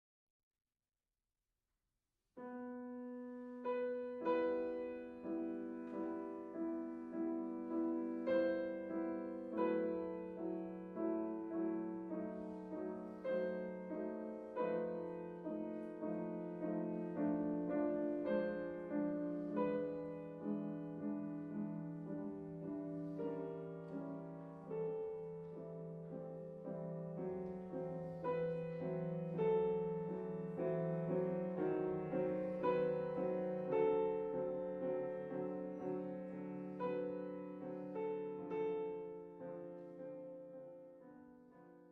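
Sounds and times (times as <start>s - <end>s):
soft solo piano: 2.4s - 41.9s.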